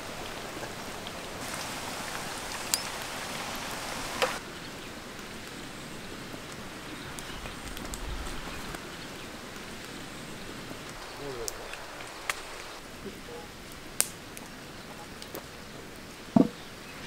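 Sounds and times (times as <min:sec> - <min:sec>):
background hiss: 0:00.0 - 0:17.0
shrimp sizzling in a pan: 0:01.4 - 0:04.4.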